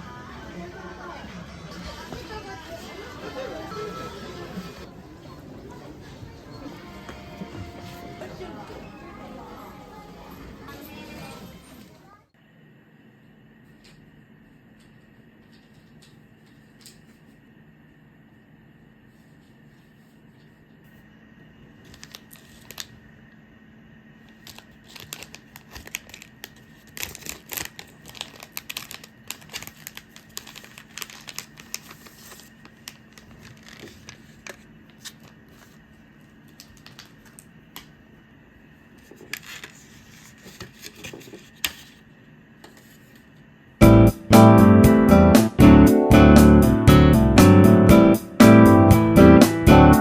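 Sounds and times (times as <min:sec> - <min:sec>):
plastic wrapping crinkling: 0:21.9 - 0:23.0, 0:24.3 - 0:37.5.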